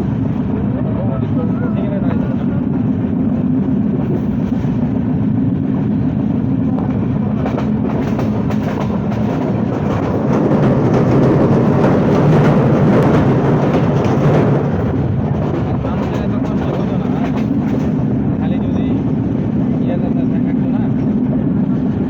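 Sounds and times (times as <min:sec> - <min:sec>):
train low rumble: 0:00.0 - 0:22.0
wheels clattering over track: 0:07.4 - 0:18.0.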